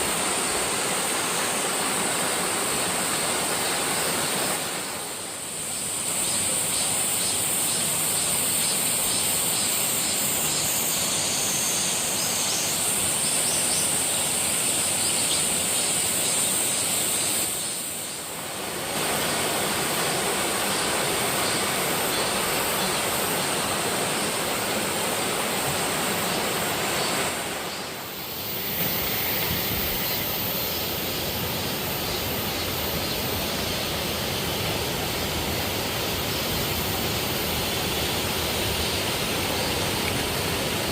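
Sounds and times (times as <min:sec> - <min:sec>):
waterfall rushing: 0:18.2 - 0:40.9.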